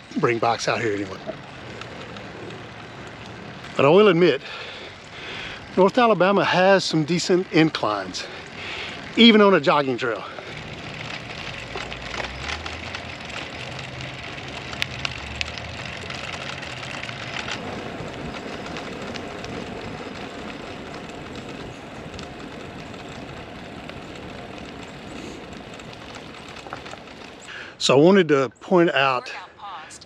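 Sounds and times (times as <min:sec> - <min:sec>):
bicycle clicks and rattles: 0:00.0 - 0:28.0
bicycle tyre and wind noise: 0:00.0 - 0:28.5.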